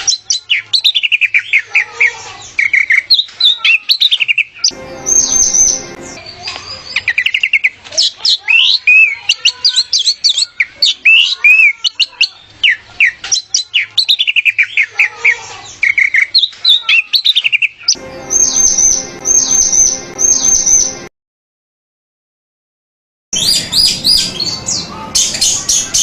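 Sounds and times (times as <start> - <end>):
bird singing whistled song: 23.4 - 26.0
high falling bird call: 23.4 - 26.0.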